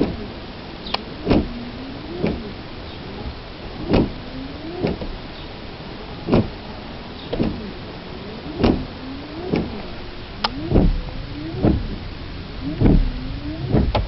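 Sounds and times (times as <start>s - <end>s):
starter motor cranking slowly: 7.4s - 14.0s.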